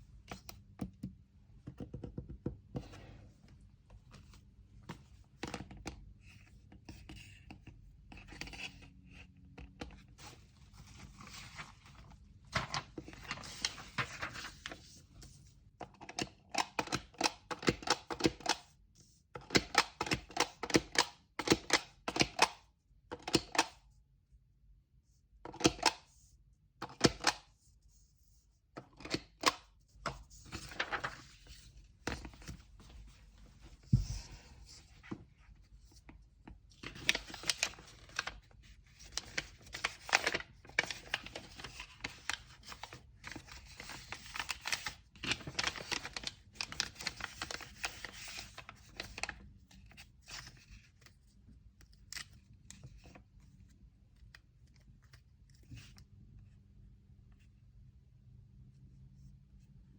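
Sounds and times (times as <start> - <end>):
paper rustling and crinkling: 10.0 - 15.4, 30.1 - 56.0.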